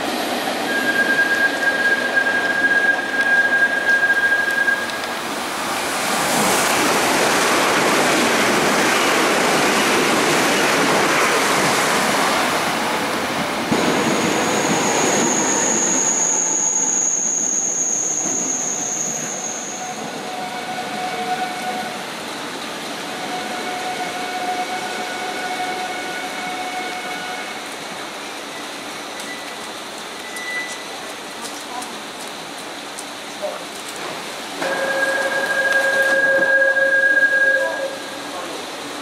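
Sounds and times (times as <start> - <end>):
train wheels rushing on rail: 0.0 - 39.0
high steady squeal: 0.7 - 5.1, 14.0 - 22.0, 34.6 - 38.6.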